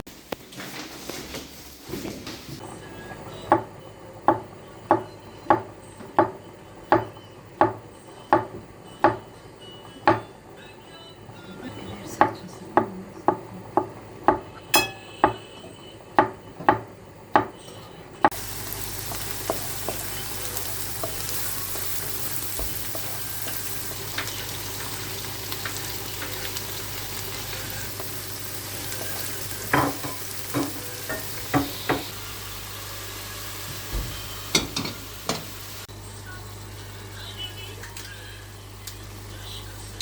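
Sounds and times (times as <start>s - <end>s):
utensil knocking against pan: 13.3s - 15.5s, 29.0s - 32.1s
food sizzling in frying pan: 18.3s - 39.3s.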